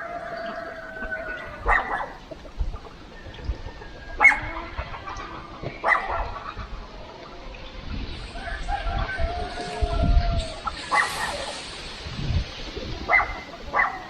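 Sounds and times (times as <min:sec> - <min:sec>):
rooster crowing: 0:00.0 - 0:02.2, 0:08.3 - 0:11.0
dog barking: 0:01.6 - 0:02.2, 0:04.2 - 0:04.4, 0:05.8 - 0:06.4, 0:10.9 - 0:11.4, 0:13.1 - 0:14.0.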